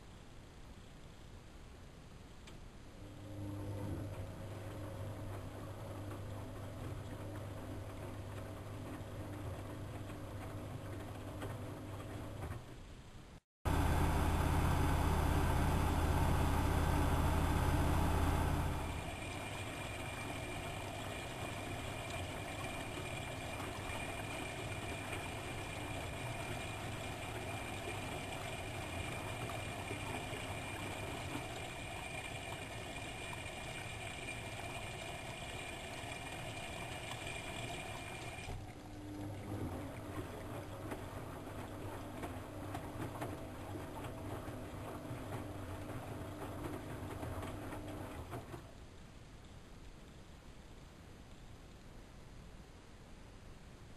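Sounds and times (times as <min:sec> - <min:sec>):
washing machine churning: 0:03.0 - 0:12.8, 0:13.7 - 0:48.7
washing machine motor hum: 0:03.0 - 0:12.8, 0:13.6 - 0:48.7
thin high whine: 0:13.7 - 0:21.1.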